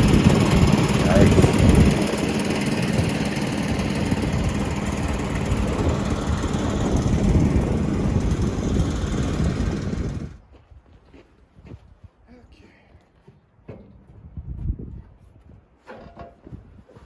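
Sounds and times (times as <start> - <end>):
sawmill engine and saw noise: 0.0 - 10.4.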